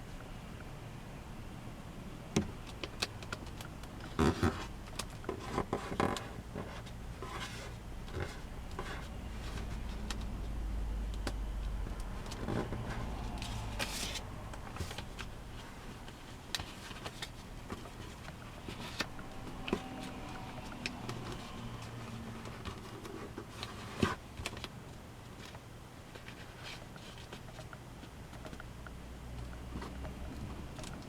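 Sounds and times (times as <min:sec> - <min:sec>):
low steady rumble: 0:00.0 - 0:25.2
paper folding rustles: 0:02.8 - 0:10.6, 0:11.6 - 0:28.6.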